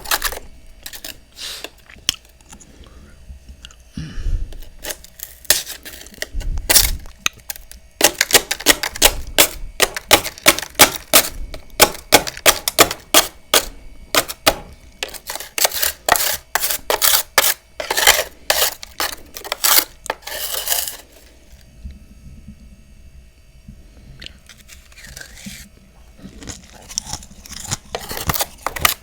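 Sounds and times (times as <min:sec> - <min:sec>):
crisp crunches of chewing frost: 0:24.2 - 0:29.0.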